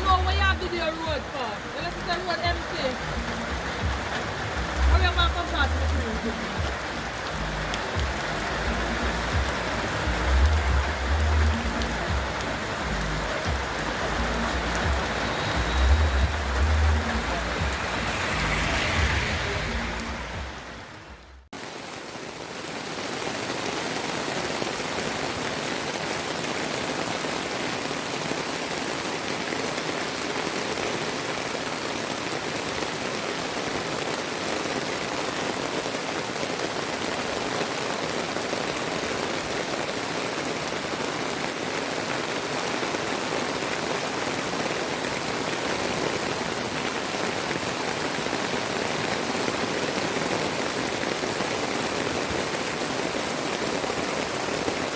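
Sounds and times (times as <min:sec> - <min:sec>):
heavy rain pouring: 0:00.0 - 0:54.9.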